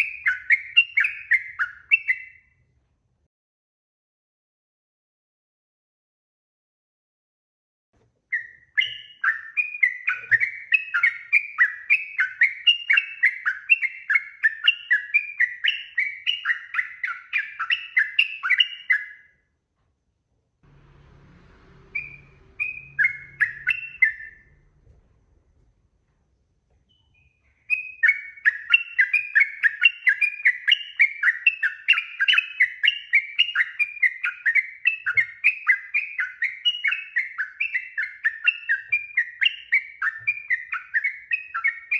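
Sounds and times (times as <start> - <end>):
bird chattering song: 0.0 - 2.6, 8.3 - 19.3, 21.8 - 24.8, 26.9 - 41.9.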